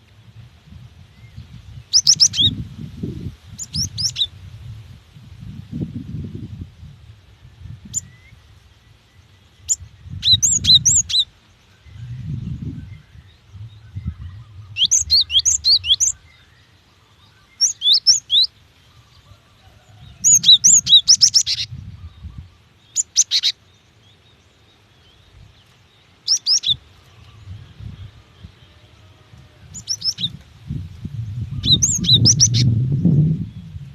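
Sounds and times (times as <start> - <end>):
bird high rapid chirps: 1.8 - 2.6, 9.6 - 11.3, 17.5 - 18.5, 20.2 - 23.6, 26.2 - 26.8, 29.8 - 30.4, 31.4 - 32.7.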